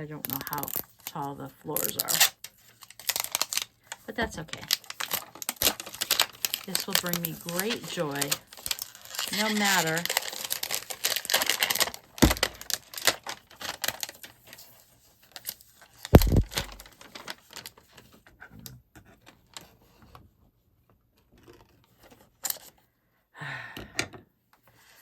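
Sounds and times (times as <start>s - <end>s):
packaging clicking and crinkling: 0.2s - 18.2s, 21.4s - 22.7s.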